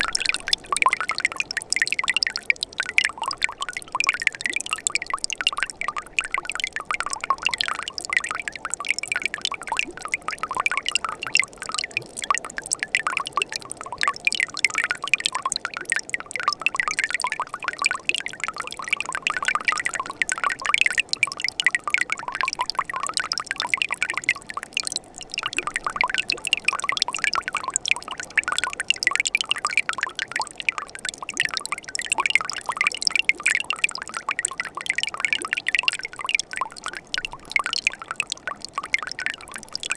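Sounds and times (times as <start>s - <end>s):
stream flowing over rocks: 0.0s - 4.4s.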